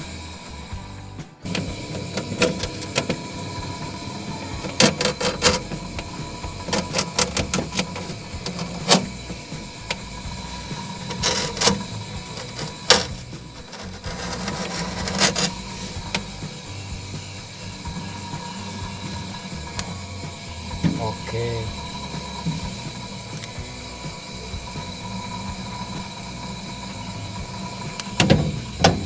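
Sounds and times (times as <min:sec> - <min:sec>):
refrigerator compressor hum: 0:00.0 - 0:29.0
tools clicking and knocking: 0:04.6 - 0:09.3, 0:11.0 - 0:16.2.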